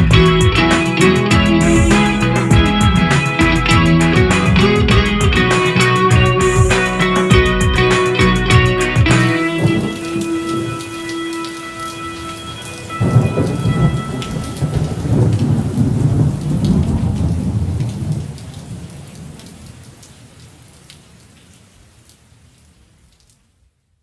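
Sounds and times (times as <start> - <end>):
rain falling steadily: 0.0 - 24.0
thunder rolling: 13.0 - 18.4.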